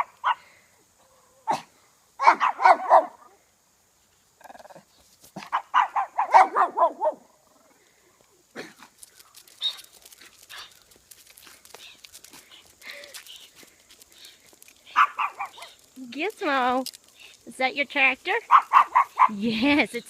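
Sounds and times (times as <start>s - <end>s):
dog barking: 0.0s - 0.4s, 1.5s - 3.3s, 5.4s - 7.3s, 14.9s - 15.8s, 18.5s - 19.4s
rustling: 7.7s - 17.6s.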